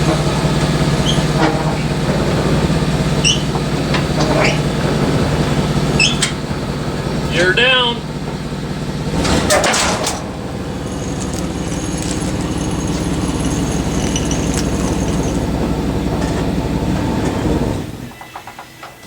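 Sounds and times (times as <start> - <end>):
engine idling: 0.0 - 18.2
metal knocks clattering: 9.4 - 16.5.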